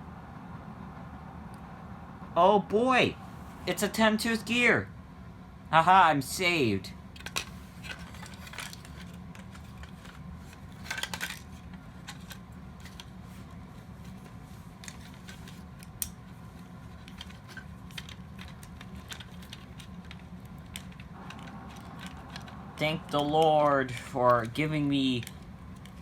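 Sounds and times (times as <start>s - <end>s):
steady low hum: 0.0s - 26.0s
small plastic parts clicking: 7.2s - 13.1s, 16.9s - 26.0s
parts clattering: 7.2s - 26.0s.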